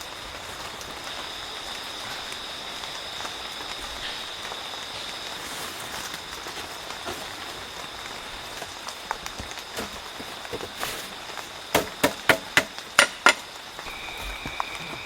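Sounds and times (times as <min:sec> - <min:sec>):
steady hiss: 0:00.0 - 0:15.0
sharp knocks: 0:11.8 - 0:13.4.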